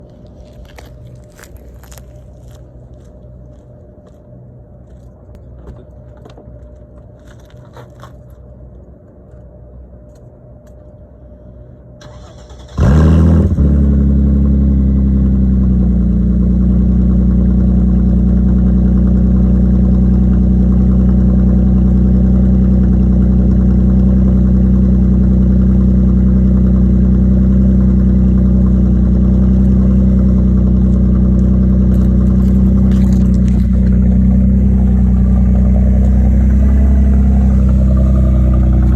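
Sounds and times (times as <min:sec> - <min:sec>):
car engine starting and idling: 0:12.0 - 0:38.9.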